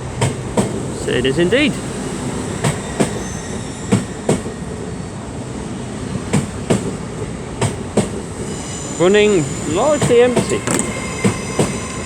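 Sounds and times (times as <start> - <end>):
train wheels clicking over rail joints: 0.0 - 4.6, 6.2 - 7.0, 7.6 - 8.6, 9.3 - 11.8
train rolling rumble: 0.0 - 12.0.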